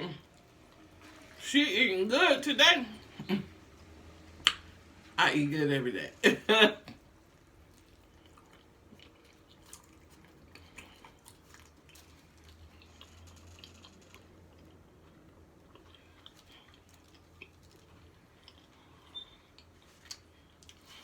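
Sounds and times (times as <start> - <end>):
wet mouth clicks: 4.4 - 4.7
person chewing food: 6.9 - 21.0.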